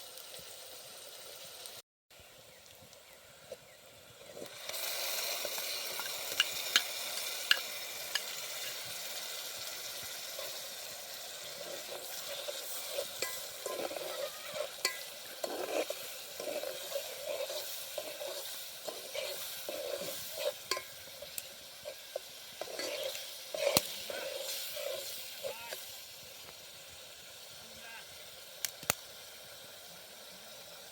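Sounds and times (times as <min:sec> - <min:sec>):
food sizzling in a pan: 0:00.0 - 0:01.8, 0:02.4 - 0:30.9
spoon clinking against pan: 0:14.8 - 0:15.1, 0:20.6 - 0:21.0.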